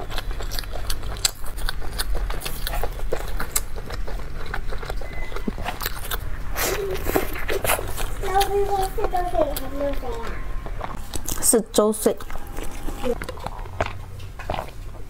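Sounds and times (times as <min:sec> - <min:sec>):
chewing soft bun with mouth clicks: 0:00.0 - 0:10.2.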